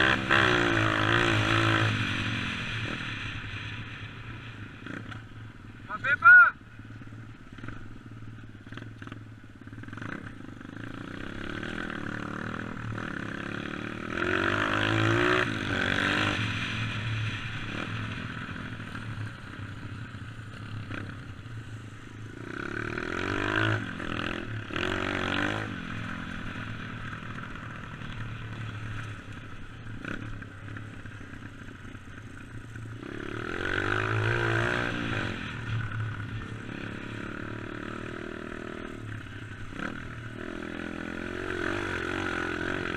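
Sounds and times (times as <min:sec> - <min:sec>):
dirt bike engine revving: 0:00.0 - 0:04.0, 0:08.7 - 0:19.6, 0:22.3 - 0:29.3, 0:33.0 - 0:42.9.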